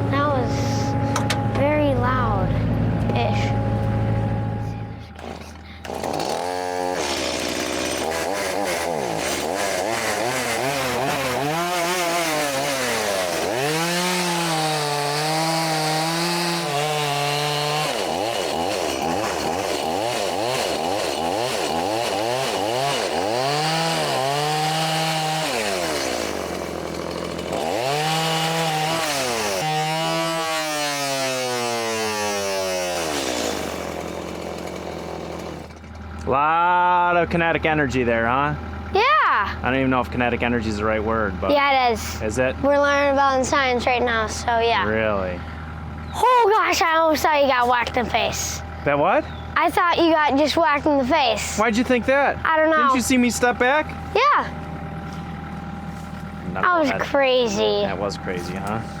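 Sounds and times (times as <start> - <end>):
chainsaw cutting wood: 5.1 - 36.2, 46.3 - 48.6, 49.6 - 59.0.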